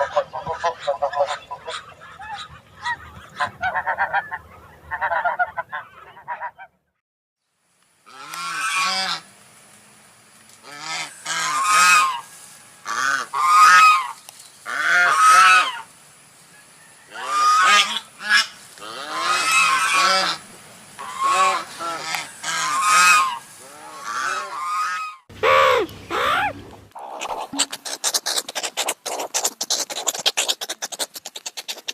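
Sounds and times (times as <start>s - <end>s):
geese honking: 0.0s - 6.8s, 8.1s - 9.3s, 10.6s - 15.9s, 17.0s - 26.6s.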